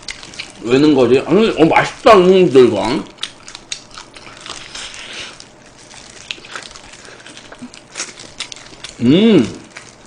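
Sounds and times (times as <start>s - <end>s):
biting and chewing chicken: 0.0s - 10.0s
wet mouth smacks and clicks: 3.2s - 4.2s.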